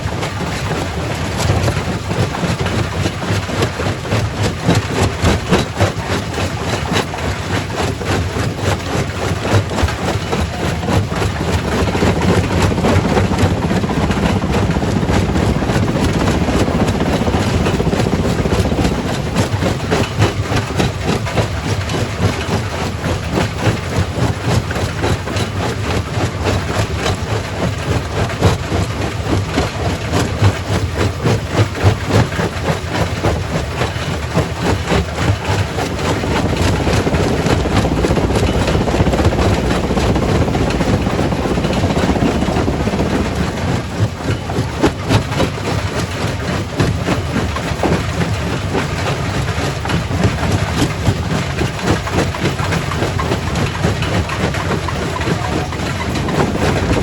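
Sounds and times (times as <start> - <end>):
heavy machine drone: 9.7 - 21.3, 35.0 - 57.0.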